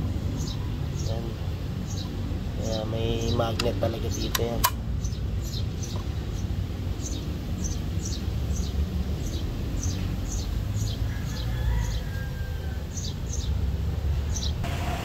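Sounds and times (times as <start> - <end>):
small bird chirping: 0.3 - 12.2.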